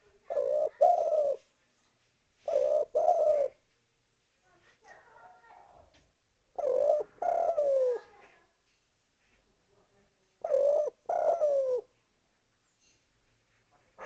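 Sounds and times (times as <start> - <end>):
dove cooing: 0.0 - 1.5, 2.4 - 3.6, 6.5 - 8.4, 10.4 - 11.9.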